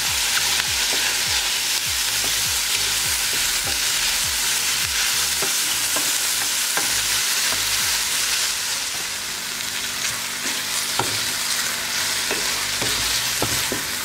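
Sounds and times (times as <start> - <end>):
food sizzling in a frying pan: 0.0 - 14.0
spoon knocking against pan: 11.0 - 11.3, 12.3 - 13.9.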